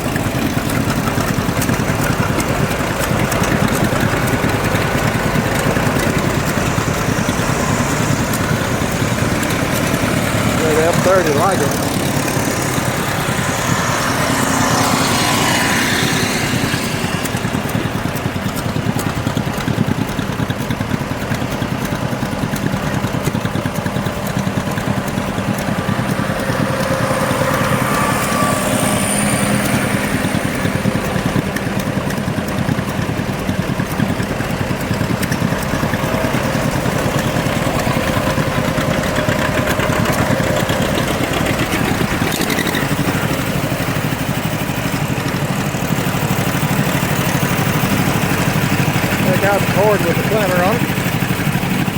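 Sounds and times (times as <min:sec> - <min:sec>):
tractor engine running: 0:00.0 - 0:51.9.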